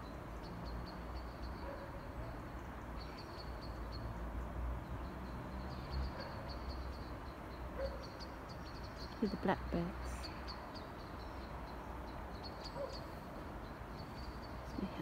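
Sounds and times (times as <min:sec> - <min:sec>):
bird high chinking calls: 0:05.2 - 0:15.0.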